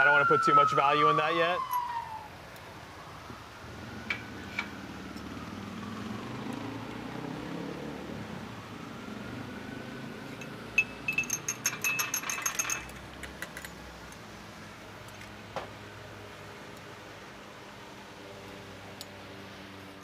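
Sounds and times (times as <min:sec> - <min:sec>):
distant siren: 0:00.0 - 0:11.4
ringing metal or glass clinks: 0:10.4 - 0:13.8.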